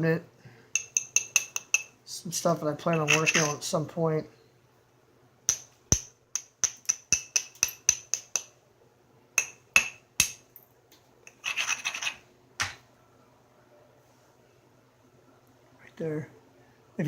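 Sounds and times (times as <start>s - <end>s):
hammerstone tapping stone: 0.8s - 1.9s, 5.5s - 8.5s, 9.4s - 10.4s
stone edge scraping: 2.9s - 3.6s, 11.3s - 12.2s.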